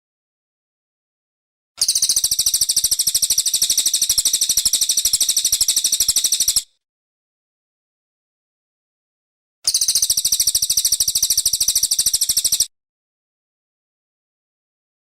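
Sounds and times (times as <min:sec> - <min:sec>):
bird high-pitched rapid trill: 0:01.8 - 0:06.8, 0:09.7 - 0:12.7.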